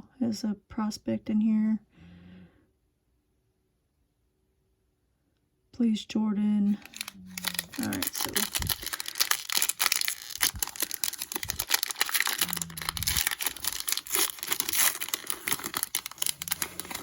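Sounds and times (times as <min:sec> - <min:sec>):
card pack wrapper crinkling and tearing: 0:06.7 - 0:17.0.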